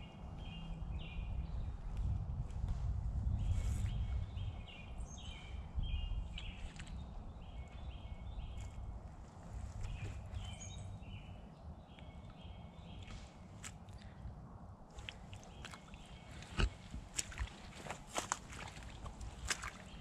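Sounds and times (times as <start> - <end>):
songbird calling: 3.4 - 8.9, 9.6 - 14.2, 15.0 - 20.0.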